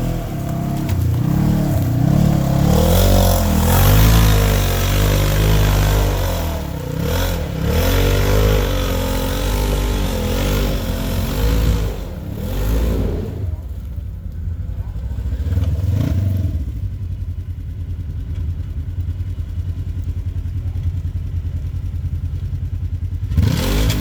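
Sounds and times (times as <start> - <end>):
vehicle engine revving: 0.0 - 18.5, 22.5 - 24.0.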